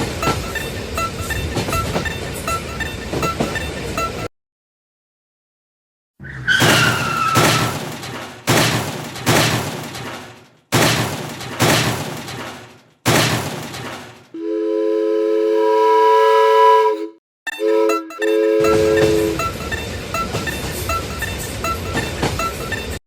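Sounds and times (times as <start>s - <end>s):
multi-tone train horn chord: 14.4s - 19.6s.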